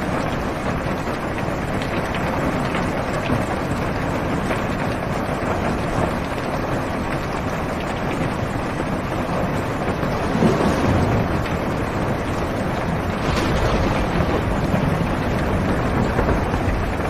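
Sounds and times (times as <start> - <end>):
heavy rain on car roof: 0.0 - 17.0
low rumble of thunder: 9.2 - 17.0.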